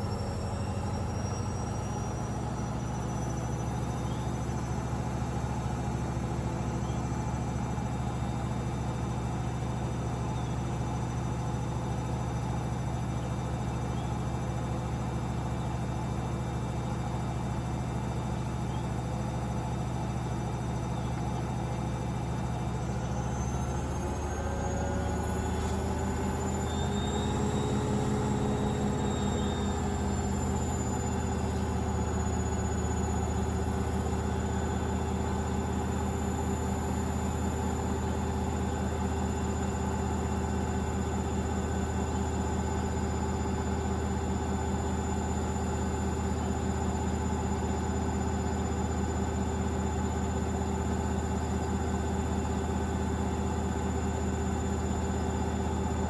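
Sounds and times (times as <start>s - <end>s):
faint high whine: 0.0s - 5.0s, 23.0s - 38.2s
washing machine spinning: 23.9s - 56.0s.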